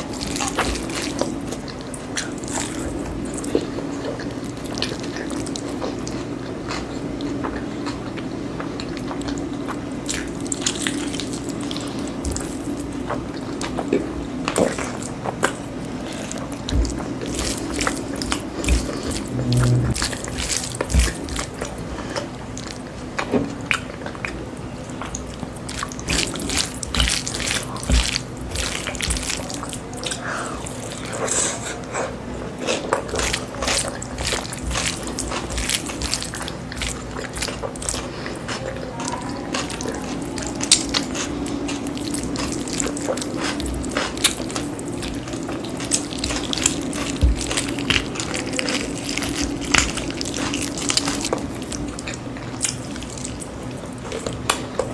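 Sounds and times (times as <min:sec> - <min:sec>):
faint steady hum: 0:00.0 - 0:54.9
wet chewing sounds: 0:00.0 - 0:54.9.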